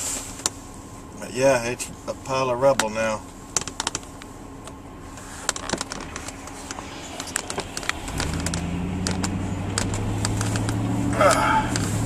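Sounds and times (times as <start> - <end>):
car engine droning: 0.0 - 12.0
sharp clicks: 5.4 - 11.9.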